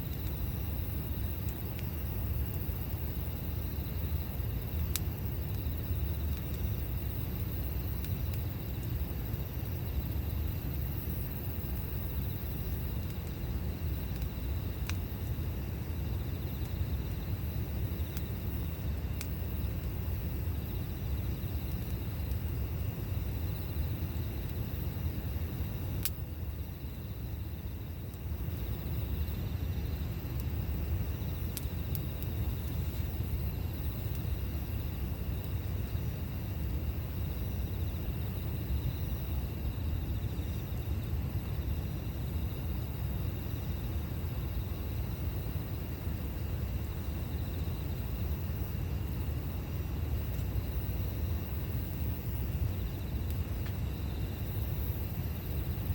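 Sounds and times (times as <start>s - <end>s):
campfire crackling and popping: 0.0s - 55.9s.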